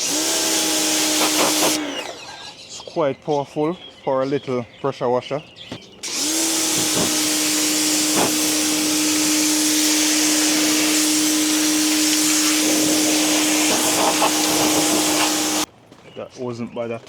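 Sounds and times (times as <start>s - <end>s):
motor pump humming: 0.0s - 2.2s, 6.0s - 15.7s
high-pressure water jet hissing: 0.0s - 2.5s, 6.0s - 15.7s.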